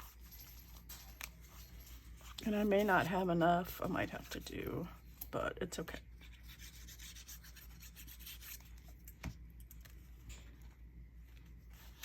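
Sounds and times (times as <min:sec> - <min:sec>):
paper rustling and rubbing: 0:06.2 - 0:09.0, 0:11.3 - 0:12.0.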